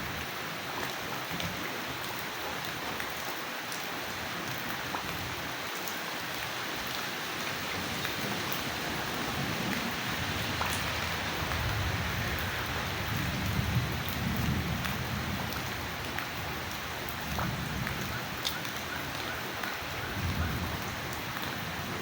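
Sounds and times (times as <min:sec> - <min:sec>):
steady rain: 0:00.0 - 0:22.0
drips ticking: 0:05.8 - 0:21.2.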